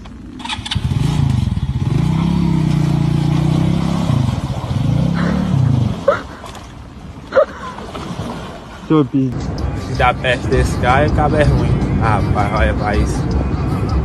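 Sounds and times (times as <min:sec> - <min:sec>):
vehicle engine revving: 0:00.0 - 0:06.2.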